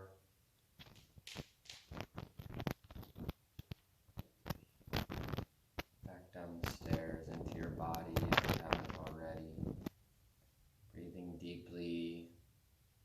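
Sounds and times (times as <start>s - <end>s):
sharp clicks and taps: 0.8s - 10.0s.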